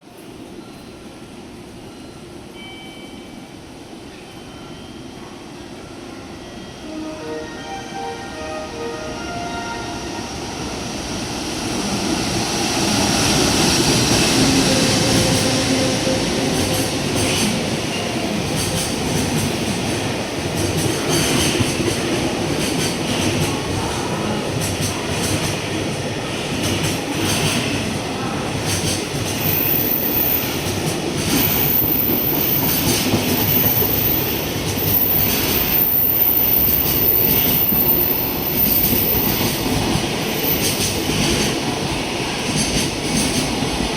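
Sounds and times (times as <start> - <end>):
train wheels rumbling on rail: 10.2 - 43.9.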